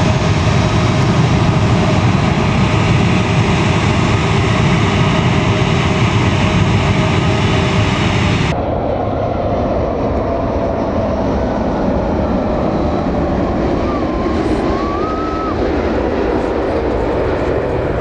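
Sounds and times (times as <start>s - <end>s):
train rumbling on rails: 0.0s - 8.8s, 10.8s - 18.0s.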